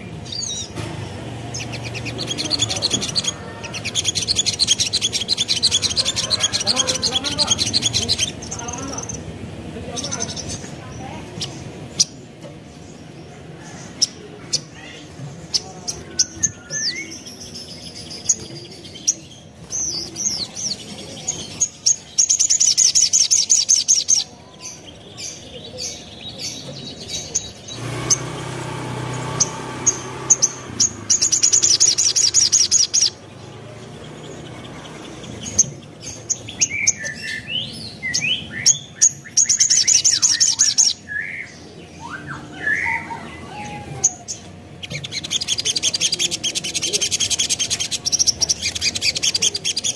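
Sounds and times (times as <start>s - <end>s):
bird chirps and whistles: 38.2s - 43.3s.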